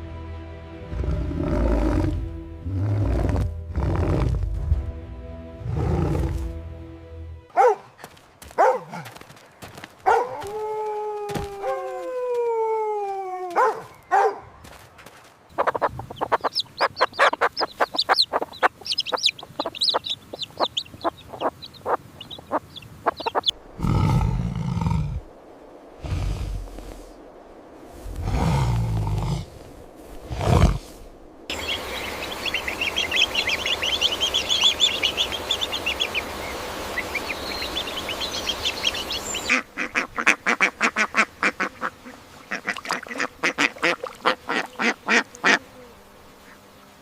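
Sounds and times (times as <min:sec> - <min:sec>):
low rumbling animal sound: 0:00.8 - 0:04.8, 0:05.6 - 0:06.6, 0:23.2 - 0:39.6
chicken clucking and cackling: 0:15.6 - 0:23.6, 0:31.5 - 0:42.0.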